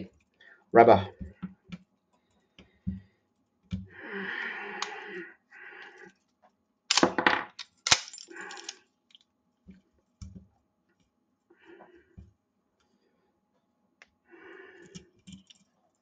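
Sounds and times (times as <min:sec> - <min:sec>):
metal parts scraping: 0:07.6 - 0:08.8.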